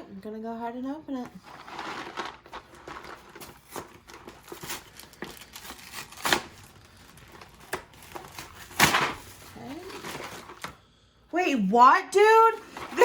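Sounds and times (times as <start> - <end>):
package wrapping tearing: 1.7 - 9.5.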